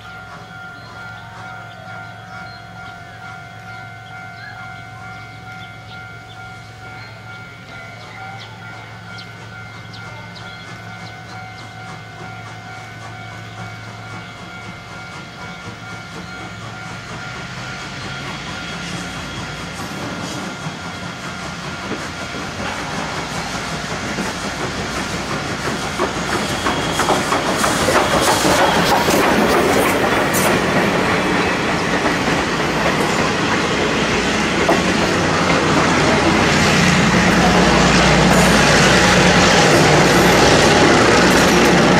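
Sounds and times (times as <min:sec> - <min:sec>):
locomotive engine hum: 0:00.0 - 0:41.9
wheels clicking over rail joints: 0:09.2 - 0:36.5.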